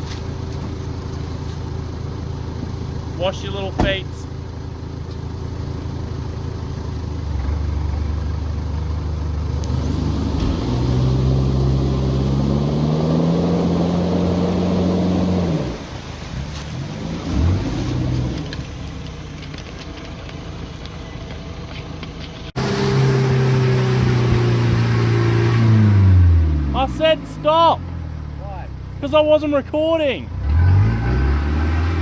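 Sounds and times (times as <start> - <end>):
engine revving hard: 9.5 - 15.8, 17.0 - 18.4, 22.6 - 27.7, 30.3 - 32.0.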